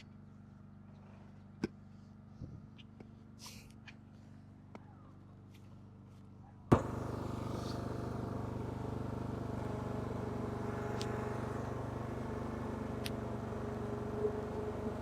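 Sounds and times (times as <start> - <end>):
lawn mower engine running: 6.7 - 15.0.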